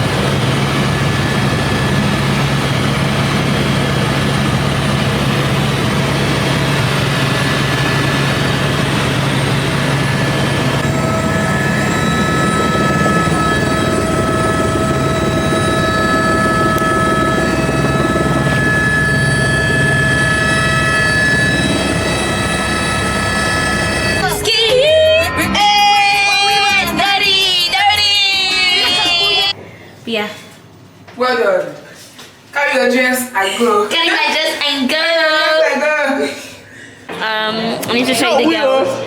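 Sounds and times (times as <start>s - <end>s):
helicopter running with whining tones: 0.0s - 29.5s.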